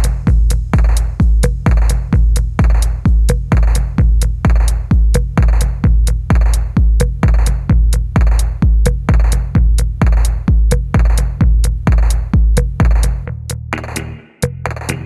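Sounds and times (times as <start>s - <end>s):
electronic music with steady beat: 0.0s - 15.0s
hi-hat ticks: 0.0s - 15.0s
kick drum with booming bass: 0.0s - 15.0s.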